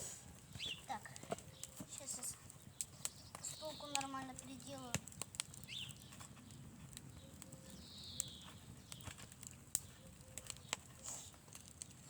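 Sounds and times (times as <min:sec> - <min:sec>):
faint clicks and snaps: 0:02.4 - 0:12.0.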